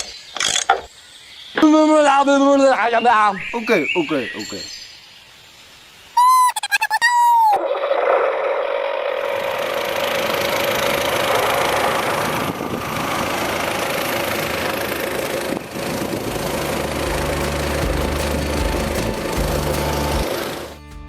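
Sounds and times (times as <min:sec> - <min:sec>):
whistle-like falling tone: 0:06.2 - 0:08.0.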